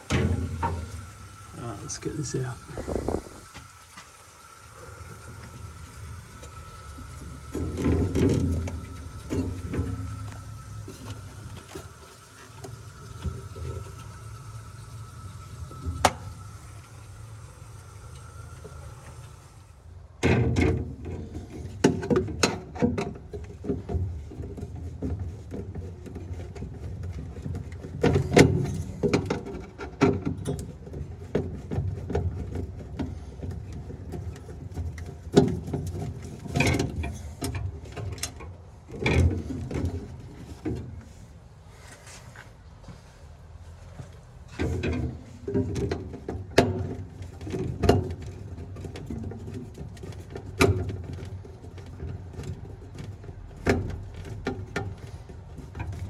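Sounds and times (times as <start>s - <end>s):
steady hum with high whine: 1.5s - 3.6s.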